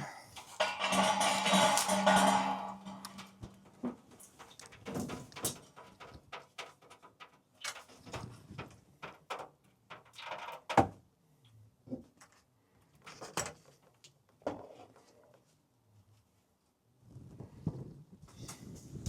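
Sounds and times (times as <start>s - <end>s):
knocks and clunks: 0.4s - 7.0s.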